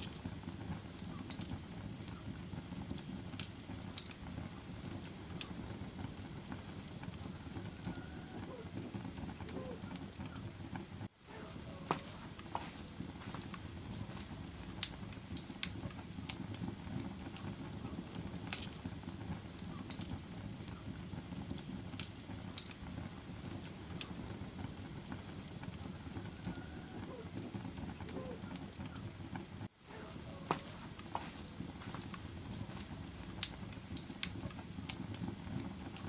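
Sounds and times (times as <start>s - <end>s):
sharp pops and snaps: 0.0s - 5.6s, 11.9s - 24.2s, 30.5s - 36.0s
fire crackling: 0.0s - 36.0s.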